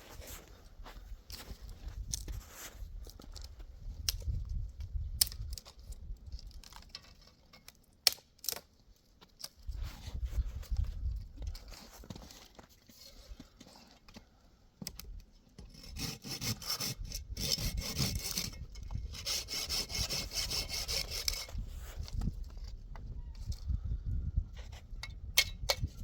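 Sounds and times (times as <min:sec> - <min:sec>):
rhythmic rasping scraping strokes: 0:15.8 - 0:21.5.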